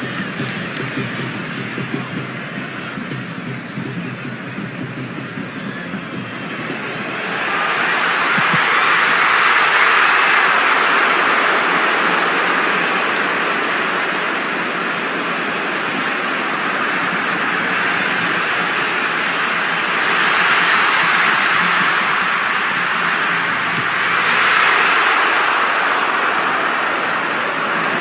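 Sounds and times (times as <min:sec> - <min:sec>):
stadium crowd din: 0:00.0 - 0:28.0.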